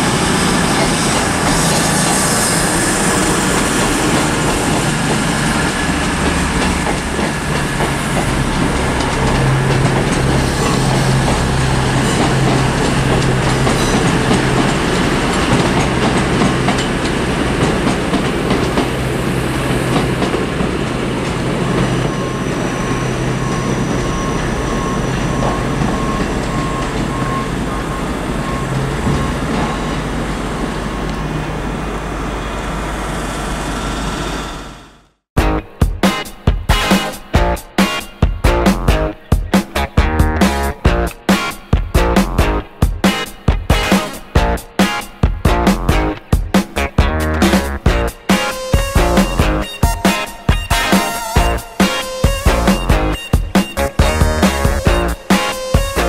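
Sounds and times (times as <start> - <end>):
train running on track: 0.0 - 56.0
faint repeating beep: 48.7 - 56.0.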